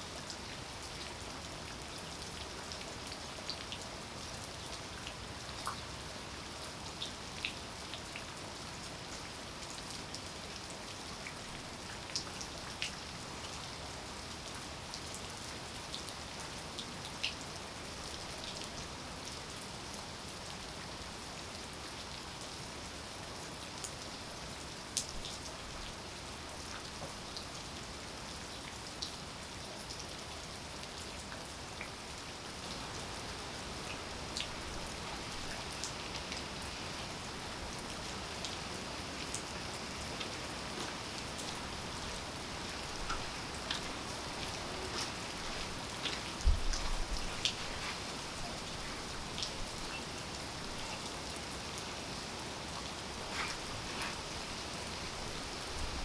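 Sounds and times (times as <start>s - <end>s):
steady rain hiss: 0.0s - 56.0s
raindrops ticking close by: 30.9s - 56.0s.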